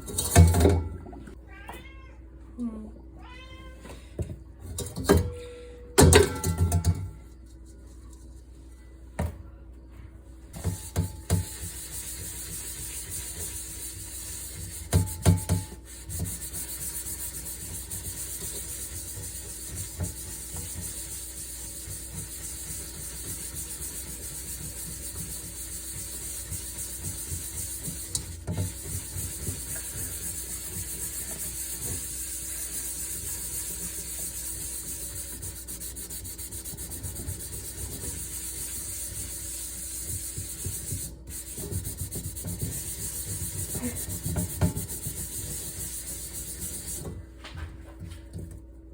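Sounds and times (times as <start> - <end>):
cookware knocks and clatters: 6.0 - 7.2
scourer scrubbing cookware: 10.6 - 47.2.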